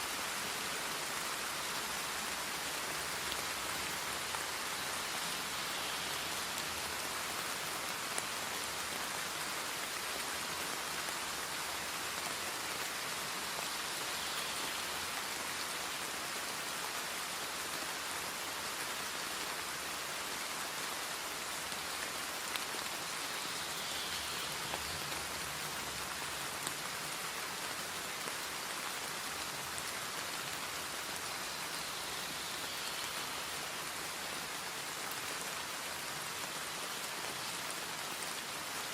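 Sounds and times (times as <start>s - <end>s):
steady rain-like hiss: 0.0s - 38.9s.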